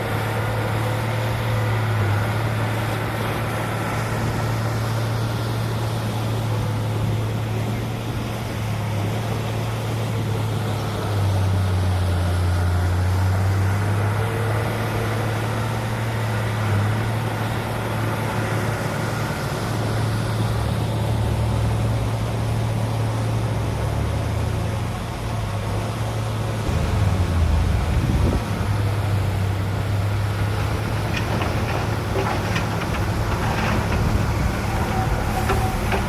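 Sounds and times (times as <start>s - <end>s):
low hum: 26.7s - 33.3s
heavy diesel engine running: 26.7s - 36.0s.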